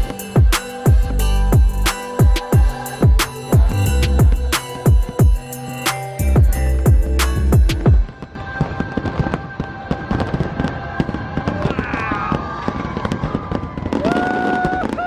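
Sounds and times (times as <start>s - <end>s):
whistling fireworks: 12.4s - 15.0s.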